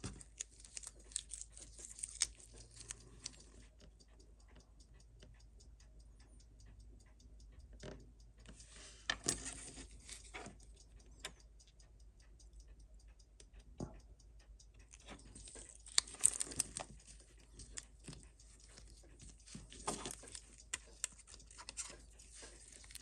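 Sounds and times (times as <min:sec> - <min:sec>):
watch ticking: 0:00.0 - 0:23.0
tool scraping watch: 0:08.4 - 0:11.1, 0:14.8 - 0:23.0.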